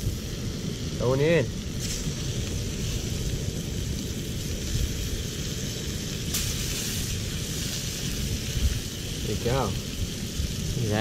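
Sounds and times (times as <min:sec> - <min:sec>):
fish sizzling in a pan: 0:00.0 - 0:11.0
low rumble: 0:00.0 - 0:11.0.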